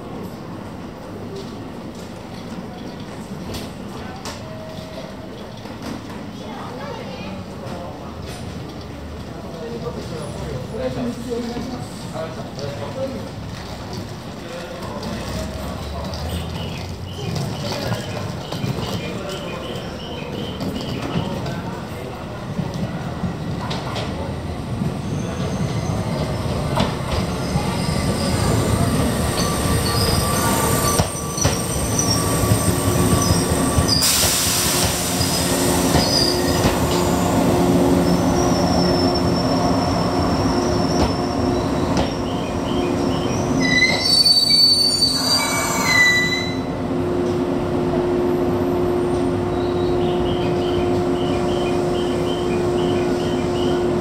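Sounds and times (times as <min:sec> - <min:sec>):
electric train running past: 0:00.0 - 0:54.0
steady train hum: 0:00.0 - 0:54.0
high brake squealing: 0:27.2 - 0:46.7.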